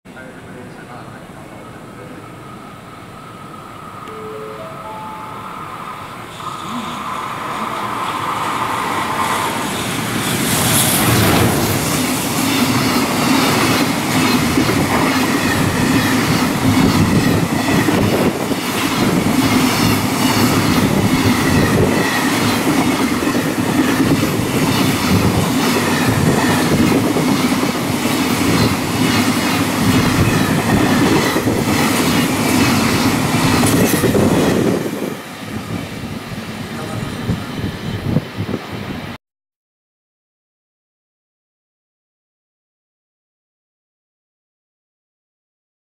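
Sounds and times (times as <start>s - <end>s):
freight train passing: 0.1s - 39.2s
wheels clickety-clack: 7.6s - 35.1s.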